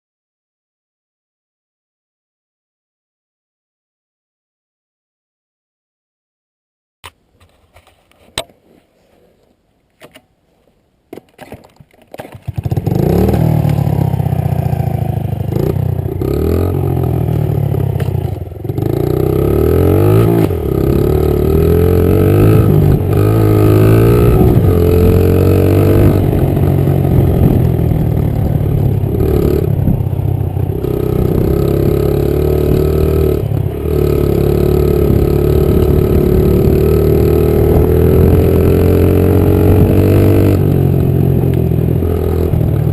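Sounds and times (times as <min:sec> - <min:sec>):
small motorbike engine revving: 0:12.3 - 0:42.9.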